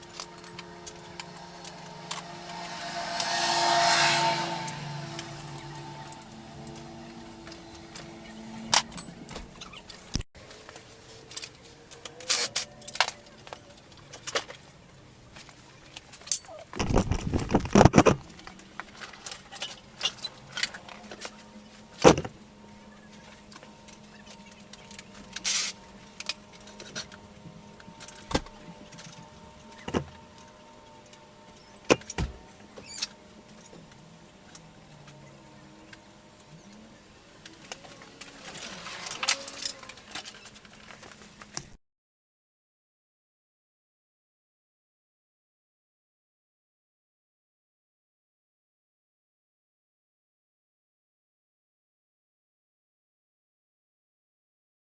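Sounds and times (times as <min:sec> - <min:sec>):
rattling clatter: 0:16.8 - 0:18.4.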